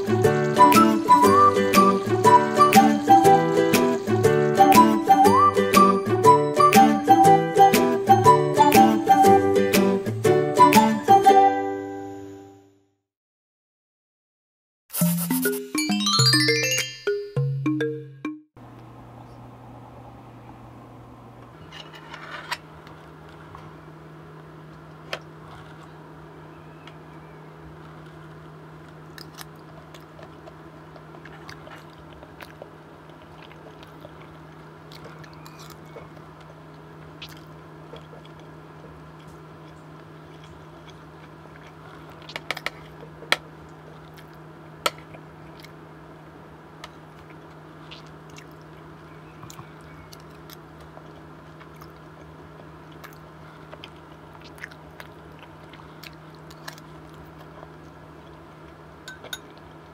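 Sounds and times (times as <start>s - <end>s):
steady low hum: 18.6s - 59.9s
chewing and biting food: 24.7s - 26.2s, 27.7s - 46.0s, 46.7s - 59.9s.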